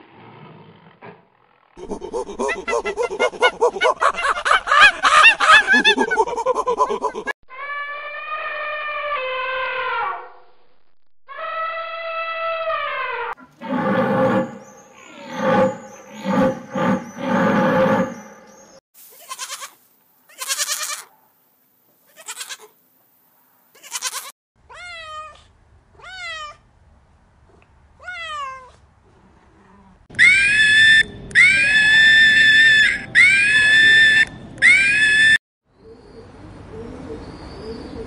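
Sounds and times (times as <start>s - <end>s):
harsh raspy animal cries: 7.5s - 10.2s, 11.3s - 18.6s
high-pitched animal calls: 7.5s - 10.3s, 11.3s - 19.7s, 30.2s - 35.4s
cat meowing: 23.8s - 25.4s, 26.0s - 26.6s, 28.0s - 28.8s.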